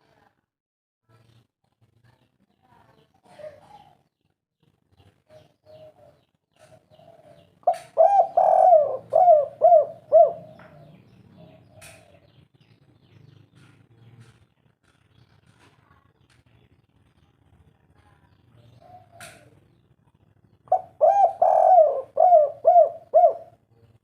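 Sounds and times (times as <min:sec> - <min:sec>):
dove cooing: 0:05.7 - 0:12.4, 0:18.7 - 0:19.6, 0:20.7 - 0:23.6.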